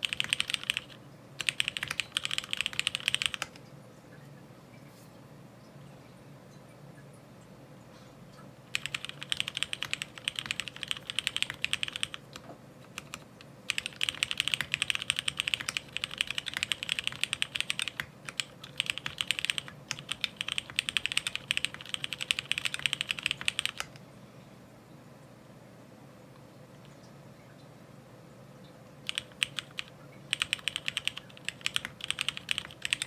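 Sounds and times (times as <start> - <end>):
mechanical keyboard typing: 0.0 - 3.6, 8.7 - 24.0, 29.0 - 33.0.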